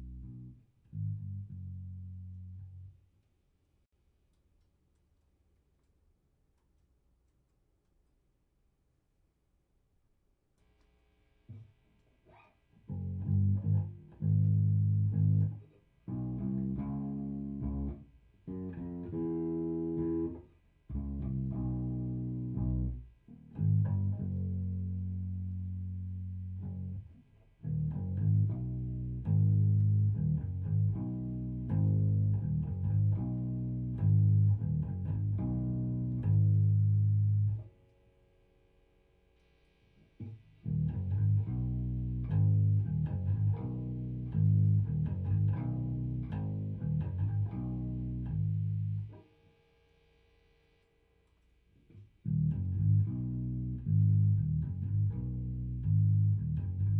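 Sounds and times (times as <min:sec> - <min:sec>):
electric bass plucked: 0:00.0 - 0:03.0, 0:12.9 - 0:37.7, 0:40.2 - 0:49.2, 0:52.2 - 0:56.9.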